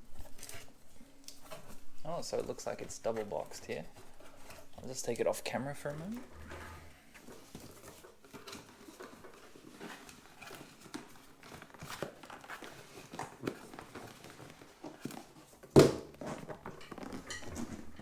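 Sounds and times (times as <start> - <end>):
cardboard boxes scraping and rustling: 6.0 - 18.0.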